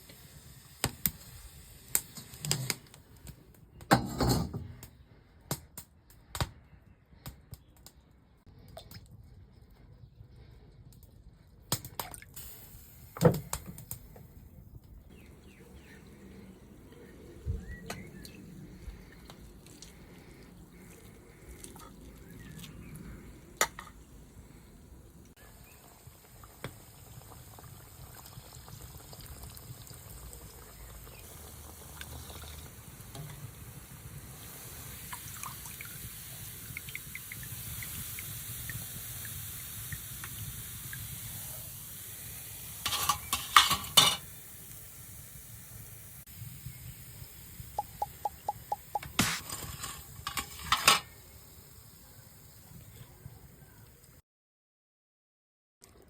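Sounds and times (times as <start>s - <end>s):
kitchen knocks and clicks: 3.9s - 4.9s
background hiss: 12.4s - 21.5s, 30.7s - 54.0s.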